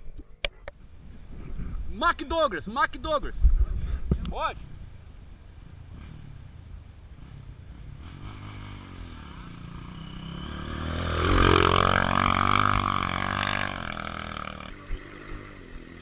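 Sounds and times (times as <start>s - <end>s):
motorcycle engine revving: 4.6s - 16.0s.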